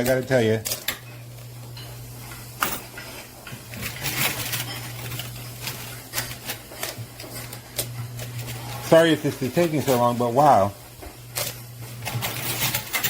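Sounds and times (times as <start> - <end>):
arcade machine hum: 0.0 - 13.0
coins clinking and clattering: 2.4 - 3.1, 3.7 - 10.2, 11.3 - 13.0.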